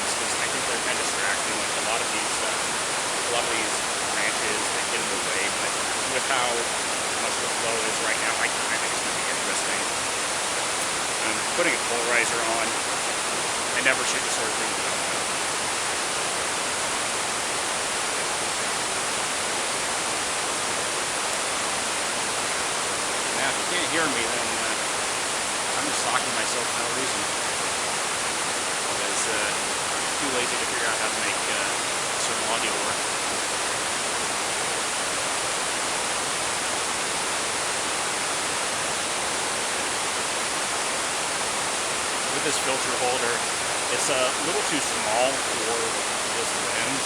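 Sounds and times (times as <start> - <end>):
creek rushing: 0.0 - 47.0.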